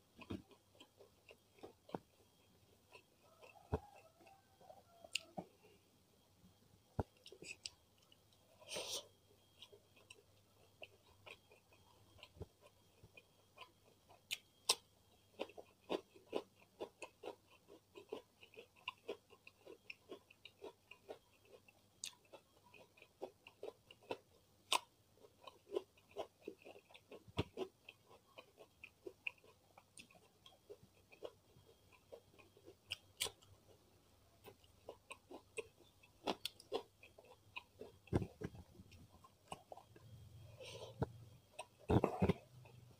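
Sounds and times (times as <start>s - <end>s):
chewing and lip smacking: 5.1s - 5.5s, 9.6s - 33.8s, 34.4s - 42.9s.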